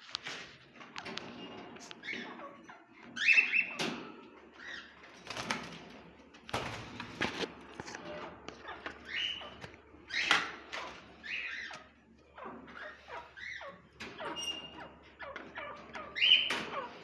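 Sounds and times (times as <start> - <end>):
birds chirping and calling: 0.8 - 17.0
wing flutters and rustling: 5.1 - 8.3.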